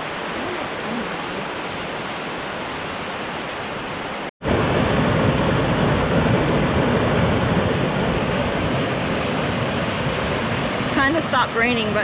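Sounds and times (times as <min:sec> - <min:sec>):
loud rushing outdoor noise: 0:04.1 - 0:12.0.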